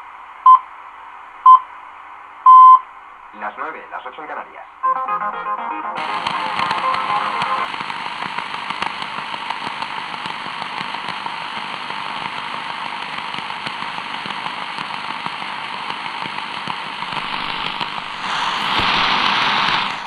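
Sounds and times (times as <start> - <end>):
radio static hiss with crackles: 3.1 - 5.1, 6.0 - 20.0.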